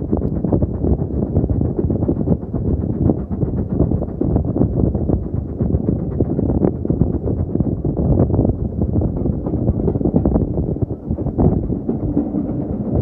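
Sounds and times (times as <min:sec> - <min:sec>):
steam train rumbling: 0:00.0 - 0:13.0
wind buffeting microphone: 0:00.0 - 0:13.0
irregular knocking: 0:09.1 - 0:13.0.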